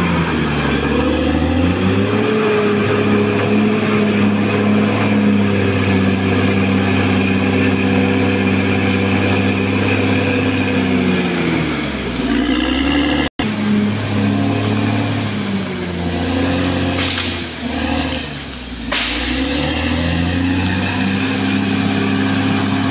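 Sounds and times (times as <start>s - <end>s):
bulldozer diesel engine running: 0.0s - 22.9s.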